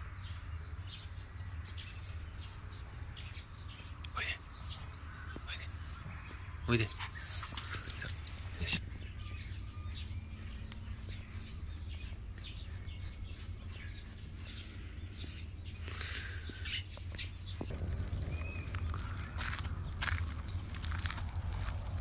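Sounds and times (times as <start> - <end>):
small birds chirping: 0.0 - 22.0
low steady hum: 7.6 - 22.0.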